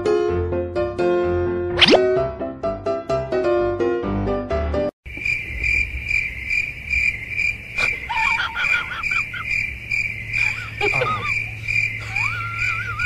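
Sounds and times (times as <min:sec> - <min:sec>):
cricket chirping: 0:05.1 - 0:13.0.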